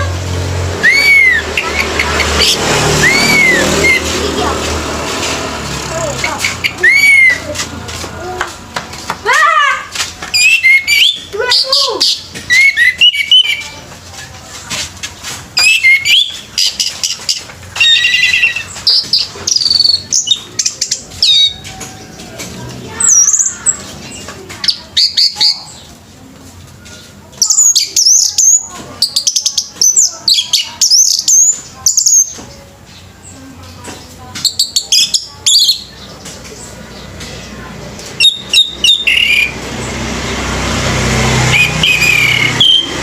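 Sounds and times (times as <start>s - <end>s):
thrush singing: 0.0s - 9.3s, 27.1s - 43.0s
rapid chattering bird notes: 0.6s - 8.0s, 15.1s - 22.1s, 27.0s - 43.0s.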